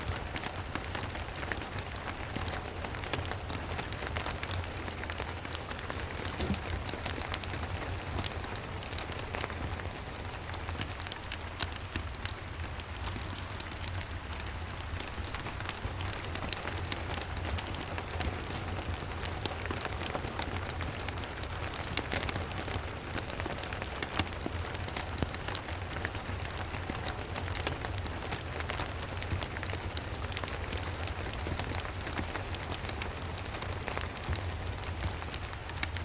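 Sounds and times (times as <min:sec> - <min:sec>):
steady rain: 0:00.0 - 0:36.0.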